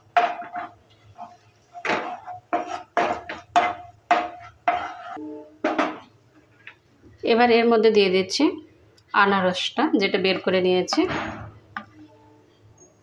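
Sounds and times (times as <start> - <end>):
spatula scraping in a pan: 0.0 - 6.0.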